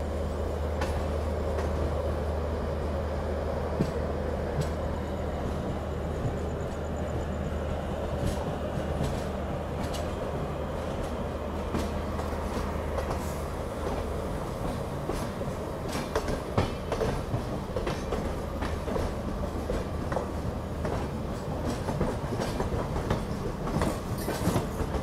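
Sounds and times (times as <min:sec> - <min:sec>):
train running noise: 0:00.0 - 0:25.0
wheels clicking over rail joints: 0:14.6 - 0:25.0.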